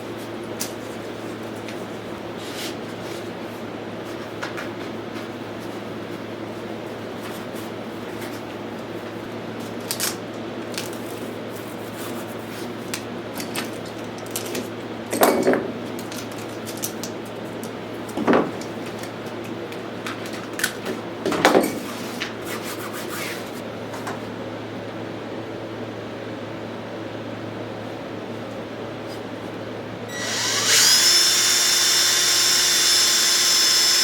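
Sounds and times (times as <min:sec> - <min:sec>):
steady low hum: 0:21.8 - 0:34.0.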